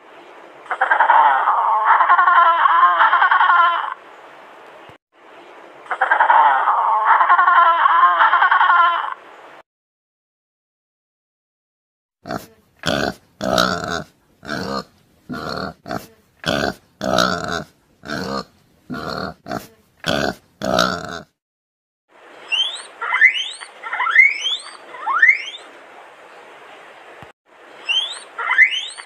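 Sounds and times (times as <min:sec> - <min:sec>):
wild boar grunting: 0:12.2 - 0:21.4
guinea pigs squeaking: 0:22.5 - 0:25.6, 0:27.9 - 0:29.0.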